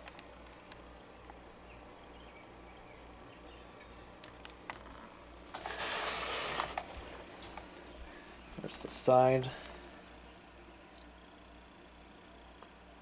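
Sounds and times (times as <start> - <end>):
handling rustle: 4.7 - 8.5.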